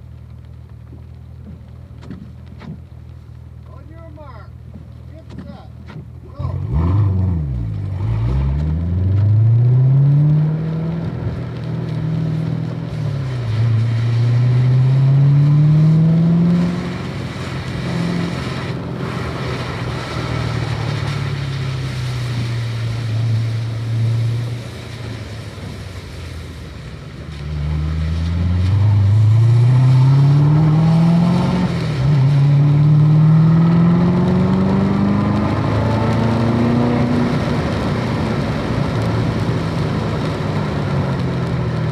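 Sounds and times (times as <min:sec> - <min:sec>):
car engine accelerating through gears: 0:05.9 - 0:24.7, 0:27.3 - 0:41.9.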